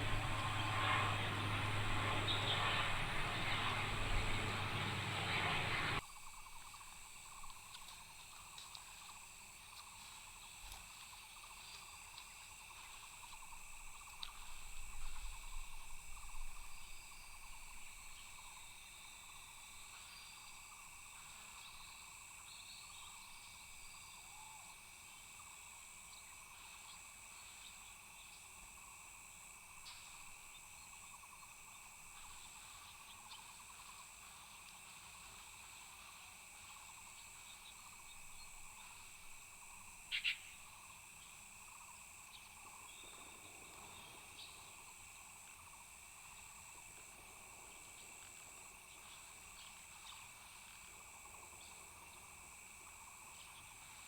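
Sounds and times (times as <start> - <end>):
brief loud insect call: 0.0 - 6.0, 32.2 - 41.8
insect chorus droning: 0.0 - 54.0.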